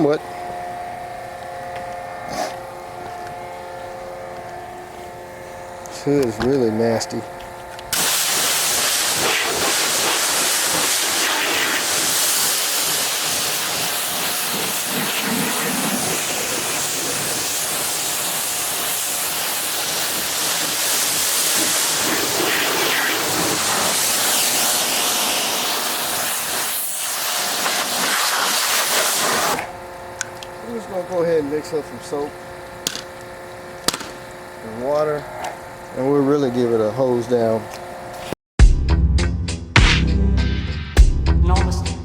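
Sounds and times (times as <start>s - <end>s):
hose spraying water on metal: 7.9s - 29.6s.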